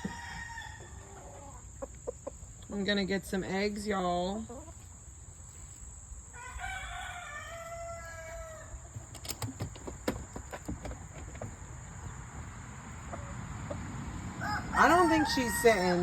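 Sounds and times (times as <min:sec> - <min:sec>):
rooster crowing: 0:00.0 - 0:01.4, 0:06.3 - 0:08.8, 0:14.4 - 0:16.0.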